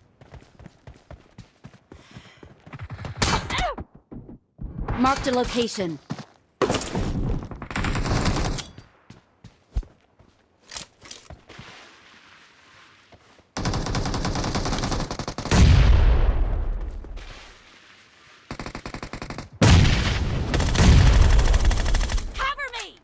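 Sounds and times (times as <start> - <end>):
deep gunshots: 15.4 - 16.8, 19.6 - 22.3
video game automatic gunfire: 20.5 - 22.3.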